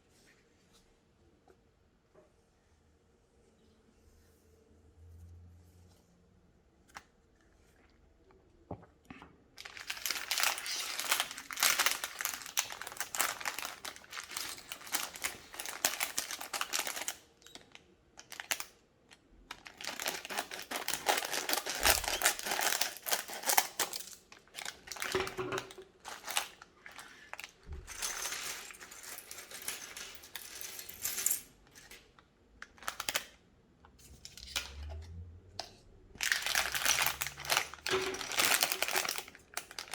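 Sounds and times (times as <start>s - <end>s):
plastic packaging crinkling: 9.6s - 18.8s, 19.5s - 33.4s, 36.2s - 39.9s.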